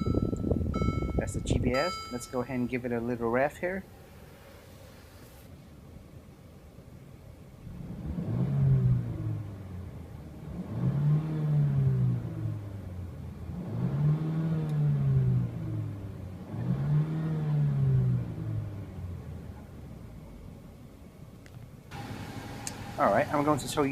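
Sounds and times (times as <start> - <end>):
car engine revving: 7.6 - 19.9, 21.9 - 23.9.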